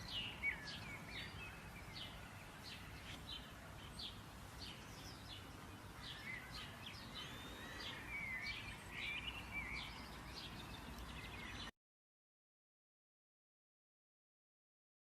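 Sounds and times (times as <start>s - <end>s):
background hiss: 0.0s - 11.7s
songbirds chirping: 0.0s - 11.8s.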